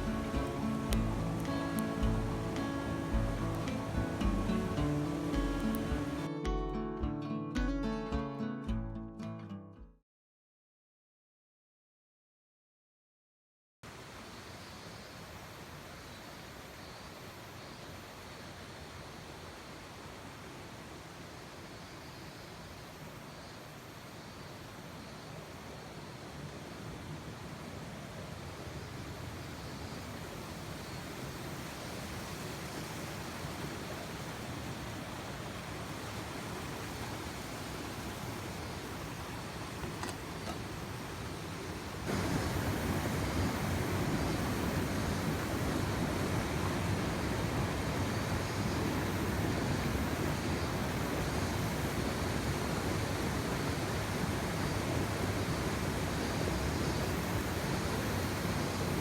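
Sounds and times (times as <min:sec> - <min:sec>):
stream rushing over rocks: 0:00.0 - 0:06.3, 0:13.9 - 0:59.0.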